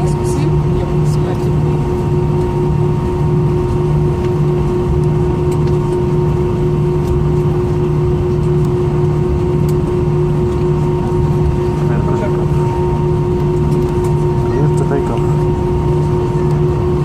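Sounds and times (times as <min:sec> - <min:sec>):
airplane cabin engine hum: 0:00.0 - 0:17.0
low pulsing throb: 0:00.0 - 0:17.0.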